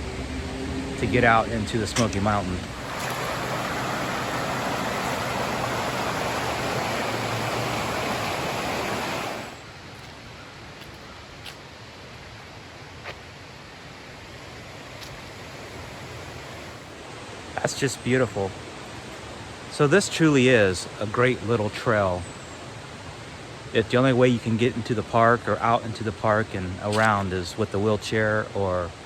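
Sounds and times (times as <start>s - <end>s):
river water rushing: 0.6s - 10.2s.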